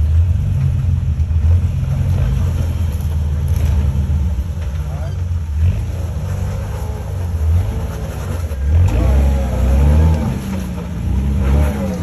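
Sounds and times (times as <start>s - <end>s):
engine revving: 5.5s - 12.0s.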